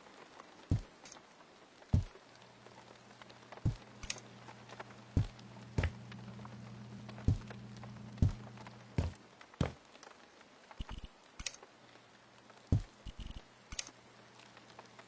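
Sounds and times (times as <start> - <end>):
low steady hum: 2.0 - 9.8
objects knocking and thudding: 5.2 - 6.1, 8.2 - 9.8.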